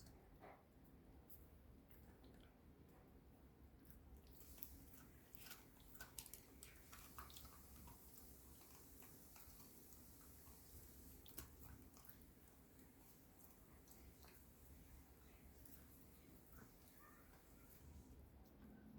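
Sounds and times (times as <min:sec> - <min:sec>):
puppy gnawing a chew: 0:00.0 - 0:18.8.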